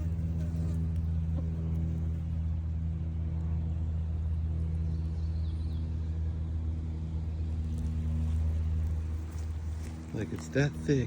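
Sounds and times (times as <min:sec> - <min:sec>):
machine humming: 0:00.0 - 0:11.0.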